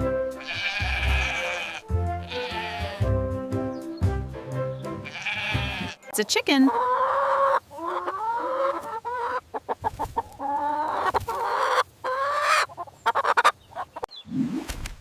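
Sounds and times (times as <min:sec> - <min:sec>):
chicken squawking and clucking: 0:06.6 - 0:14.1.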